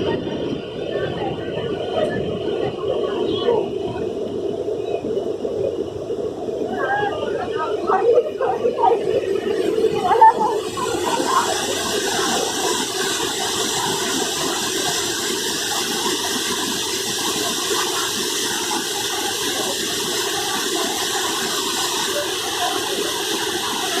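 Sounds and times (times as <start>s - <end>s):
waterfall rushing: 6.7s - 24.0s.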